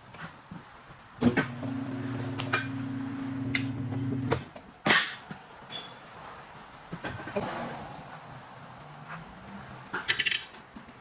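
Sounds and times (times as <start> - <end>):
machine motor humming: 1.2 - 4.4.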